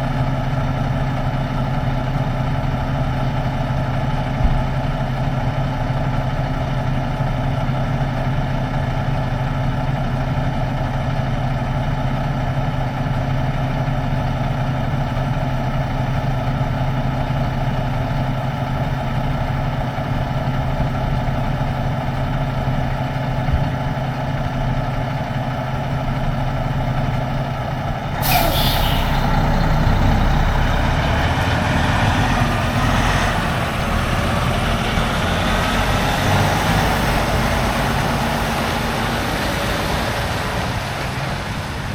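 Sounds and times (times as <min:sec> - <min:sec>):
diesel truck engine running: 0:00.0 - 0:41.9
road noise: 0:17.1 - 0:41.9
air release hiss: 0:28.2 - 0:29.4.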